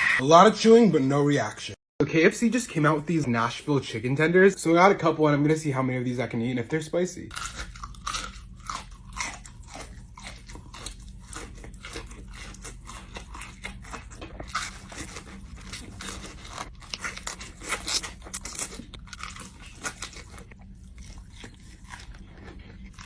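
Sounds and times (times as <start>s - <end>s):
crunching and chewing fried chicken: 7.3s - 23.0s.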